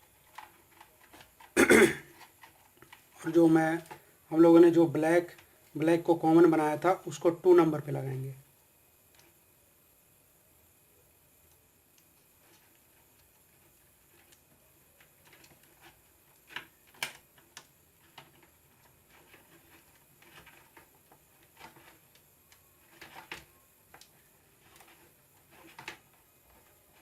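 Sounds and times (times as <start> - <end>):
light clicks of small parts: 9.1 - 9.4.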